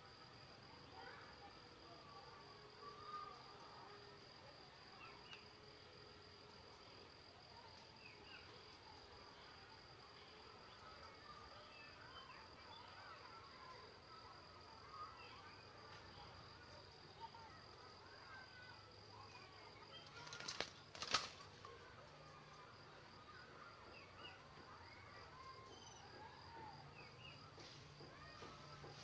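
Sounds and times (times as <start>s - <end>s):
high insect whine: 15.0s - 24.1s
bird chirps: 23.2s - 26.3s.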